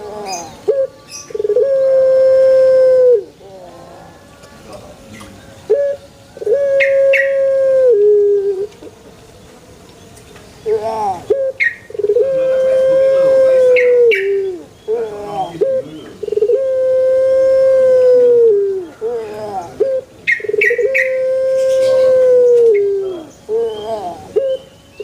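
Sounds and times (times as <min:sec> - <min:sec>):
dove cooing: 0:00.0 - 0:09.0, 0:10.6 - 0:25.0.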